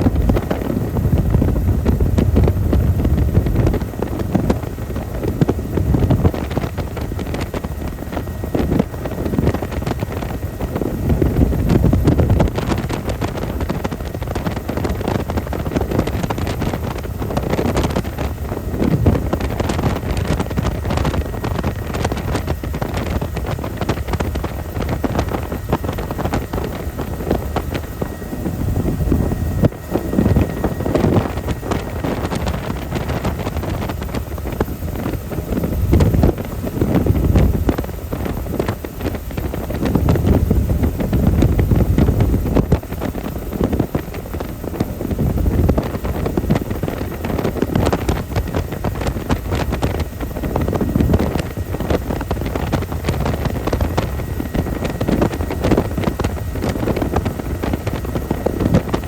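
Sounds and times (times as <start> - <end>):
helicopter rotor and engine: 0.0 - 59.0
wind buffeting microphone: 0.0 - 59.0.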